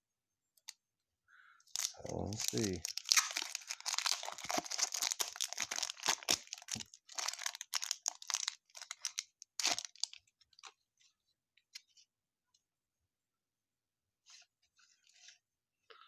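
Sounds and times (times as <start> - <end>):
wrapper tearing and crinkling: 1.7 - 10.2.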